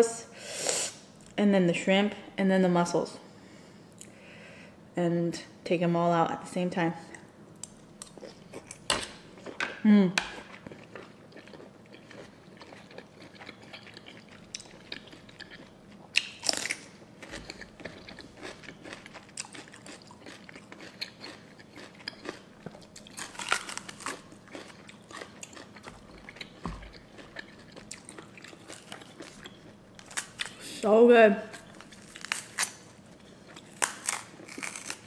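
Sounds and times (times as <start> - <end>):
chewing and crunching salad: 7.1 - 30.8, 31.4 - 35.0.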